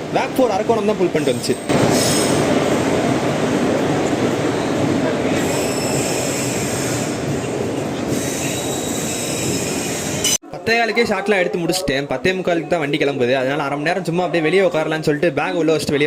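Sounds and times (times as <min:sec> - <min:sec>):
train wheels rumbling on rails: 0:00.0 - 0:10.3
high-pitched wheel squeal: 0:05.4 - 0:07.2, 0:08.1 - 0:10.4.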